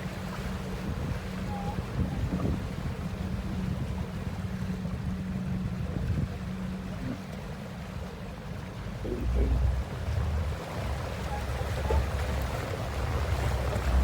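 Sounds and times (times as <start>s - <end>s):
boat motor humming: 0.0s - 14.0s
rushing water: 0.0s - 14.0s
wind buffeting microphone: 0.6s - 7.2s.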